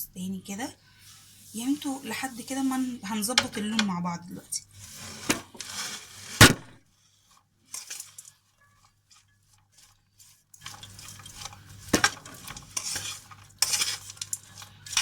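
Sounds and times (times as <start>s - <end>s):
spoon stirring popcorn: 0.3s - 15.0s.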